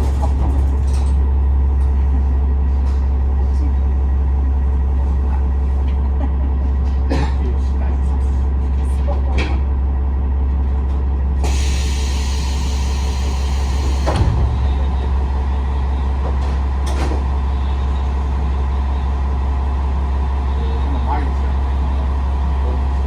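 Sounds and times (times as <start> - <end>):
diesel railcar engine drone: 0.0 - 23.0
short thump: 14.0 - 14.9.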